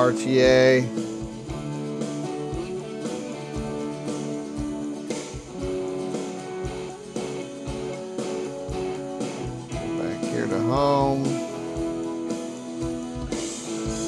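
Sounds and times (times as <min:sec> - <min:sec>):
strummed acoustic guitar: 0:00.0 - 0:14.0.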